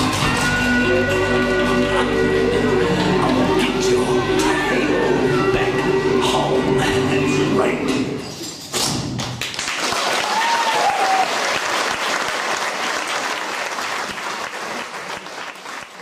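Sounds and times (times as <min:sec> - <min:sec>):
performance music: 0:00.0 - 0:08.4
audience applauding: 0:09.4 - 0:16.0.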